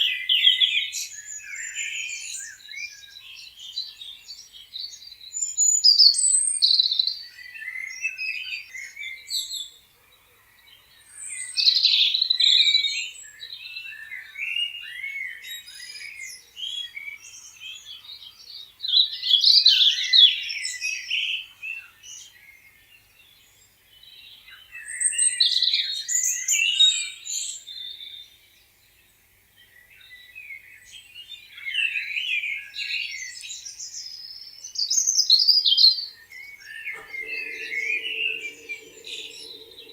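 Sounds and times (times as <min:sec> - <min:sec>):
songbirds chirping: 0:36.6 - 0:39.9.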